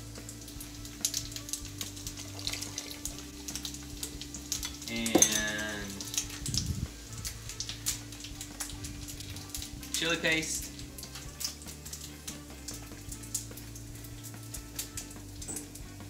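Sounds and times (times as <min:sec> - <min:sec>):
liquid trickling: 0:00.0 - 0:16.0
tofu sizzling in a pan: 0:00.0 - 0:16.0.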